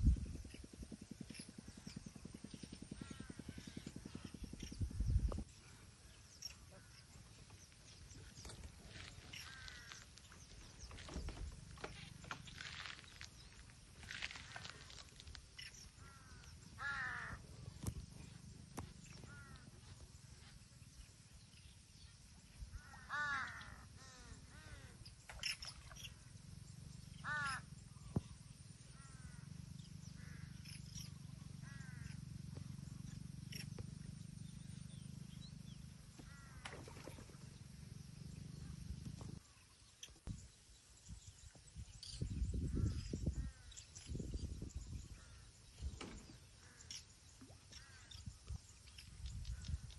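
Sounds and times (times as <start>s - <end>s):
steady low rumble: 0.0s - 22.9s
crow cawing: 9.0s - 10.1s, 16.0s - 17.4s, 19.2s - 19.7s, 22.8s - 25.0s, 27.2s - 27.7s, 30.2s - 30.6s, 31.6s - 32.2s, 36.2s - 36.7s.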